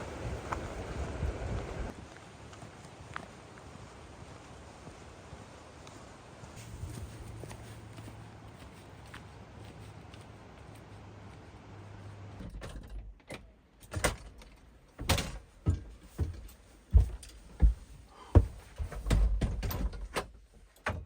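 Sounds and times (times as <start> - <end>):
irregular knocks and thuds: 15.0 - 21.0.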